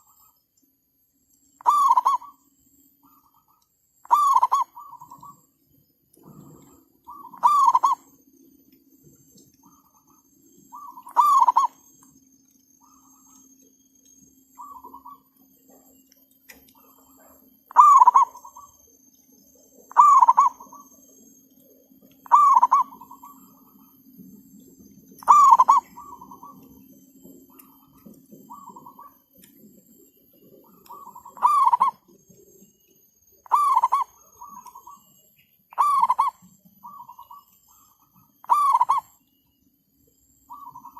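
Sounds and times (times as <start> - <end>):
high-pitched whine: 0.0 - 40.9
dove cooing: 1.6 - 2.4, 3.0 - 5.4, 6.2 - 8.2, 9.6 - 11.8, 14.6 - 16.0, 16.8 - 18.8, 19.6 - 21.0, 21.7 - 24.3, 25.0 - 29.5, 30.4 - 32.2, 33.4 - 35.1, 35.7 - 39.2, 40.5 - 40.9
fainter answering dove calls: 1.6 - 2.4, 3.0 - 5.4, 6.2 - 8.2, 9.6 - 11.9, 12.8 - 13.4, 14.5 - 15.3, 16.8 - 18.8, 19.8 - 21.1, 22.2 - 24.0, 25.2 - 26.9, 27.5 - 29.4, 30.6 - 32.2, 33.4 - 39.2, 40.5 - 40.9.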